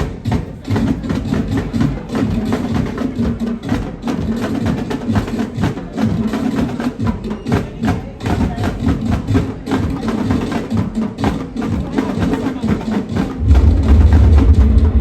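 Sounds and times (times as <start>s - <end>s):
marching drum corps playing: 0.0s - 15.0s
steady low tone: 13.4s - 15.0s.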